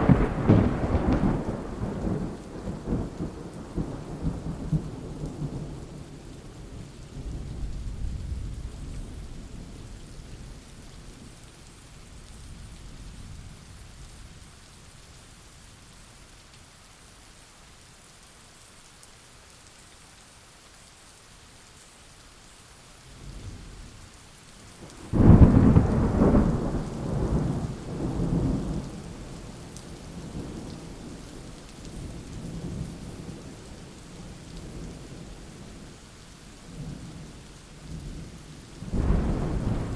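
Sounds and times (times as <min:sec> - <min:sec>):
loud thunderclap: 0:00.0 - 0:04.3, 0:24.9 - 0:29.0, 0:38.8 - 0:39.9
rolling thunder: 0:00.0 - 0:05.9, 0:24.9 - 0:31.2, 0:38.8 - 0:39.9
steady rain: 0:00.0 - 0:39.9.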